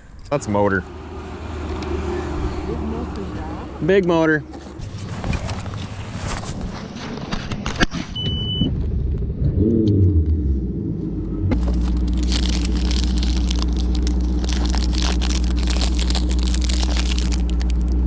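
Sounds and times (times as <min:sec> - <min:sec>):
outboard motor running: 0:11.5 - 0:18.0.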